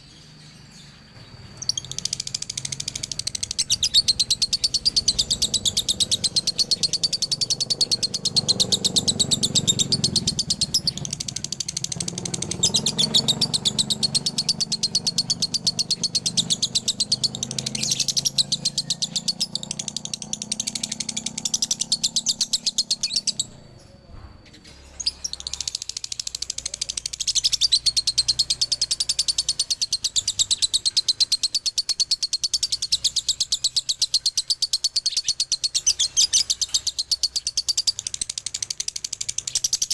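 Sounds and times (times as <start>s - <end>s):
lovebird chattering song: 0.0s - 39.9s.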